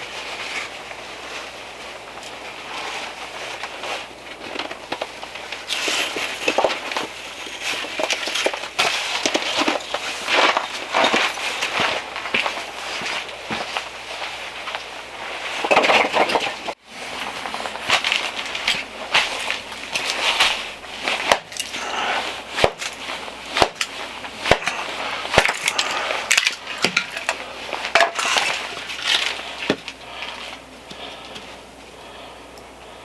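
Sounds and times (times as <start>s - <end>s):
wood scraping and crunching: 2.2s - 31.1s
wood cracking: 15.6s - 30.4s.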